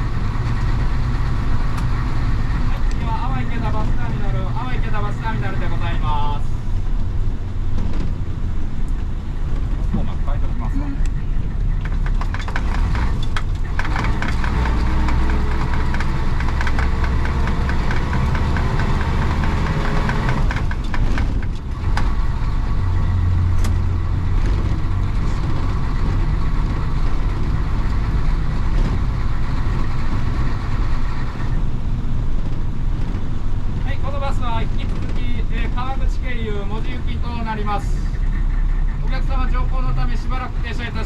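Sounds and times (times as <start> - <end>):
diesel bus engine pulling: 0.0 - 41.0.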